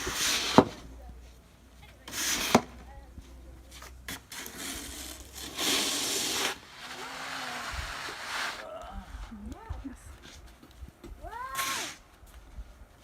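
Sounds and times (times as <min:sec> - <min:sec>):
shovel scraping snow: 0:00.0 - 0:00.9, 0:02.1 - 0:02.9, 0:03.7 - 0:08.7, 0:11.5 - 0:12.0.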